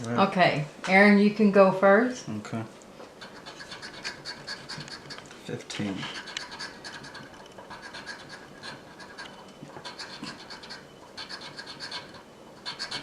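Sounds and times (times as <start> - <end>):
lottery ticket being scratched: 3.0 - 13.0.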